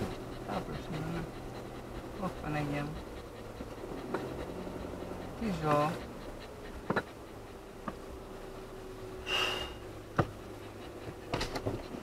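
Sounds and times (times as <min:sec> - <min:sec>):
car engine idling: 0:00.0 - 0:11.8
short hiss: 0:09.2 - 0:09.8.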